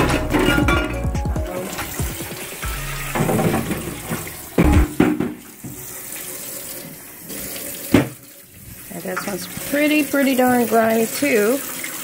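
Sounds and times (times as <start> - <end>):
tap running into sink: 1.6 - 6.0, 6.8 - 8.3, 9.0 - 10.8
shelf knocking against sink: 3.2 - 5.8.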